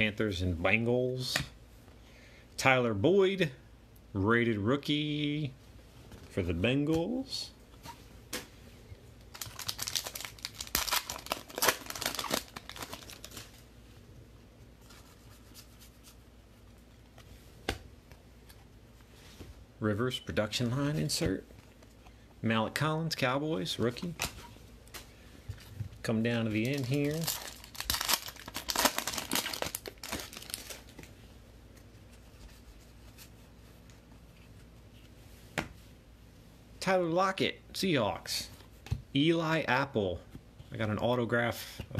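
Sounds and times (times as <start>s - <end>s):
foil wrapper crinkling: 9.3s - 13.6s, 26.4s - 31.0s.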